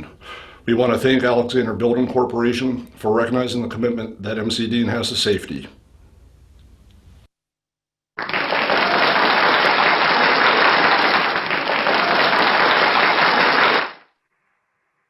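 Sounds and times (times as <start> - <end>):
crowd applause: 8.2 - 14.0.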